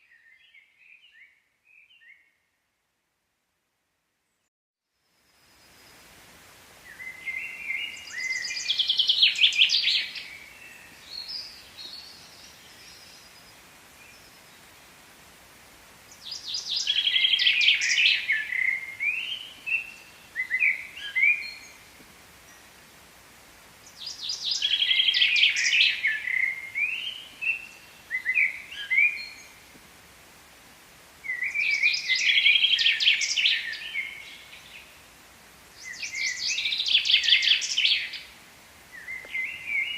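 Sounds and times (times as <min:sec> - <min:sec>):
faint outdoor background noise: 0:00.0 - 0:39.9
songbird singing trills: 0:06.9 - 0:14.5, 0:16.1 - 0:21.8, 0:23.8 - 0:29.6, 0:31.3 - 0:34.9, 0:35.8 - 0:38.3, 0:38.9 - 0:39.9.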